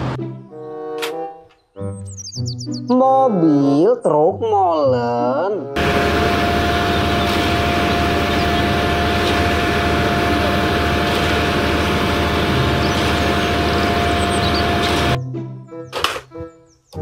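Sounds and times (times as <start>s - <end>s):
diesel engine running: 5.8s - 15.2s
steady whine: 5.8s - 15.2s.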